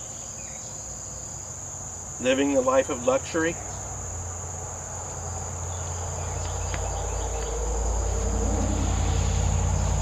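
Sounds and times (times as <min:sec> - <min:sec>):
high-pitched insect chorus: 0:00.0 - 0:10.0
low rumble: 0:07.0 - 0:10.0.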